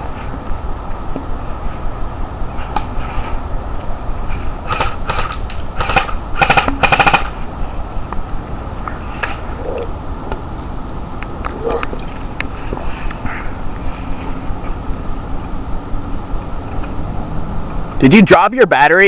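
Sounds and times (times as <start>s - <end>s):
airsoft gun firing rapid clicks: 4.6s - 7.4s.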